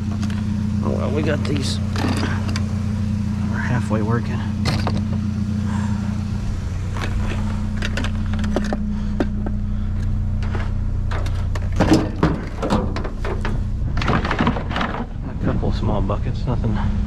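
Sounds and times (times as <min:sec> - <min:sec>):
vehicle engine idling: 0:00.0 - 0:17.0
junk clattering in a dumpster: 0:01.9 - 0:02.7, 0:10.4 - 0:15.8
loud clunk: 0:04.6 - 0:05.2, 0:10.4 - 0:15.4.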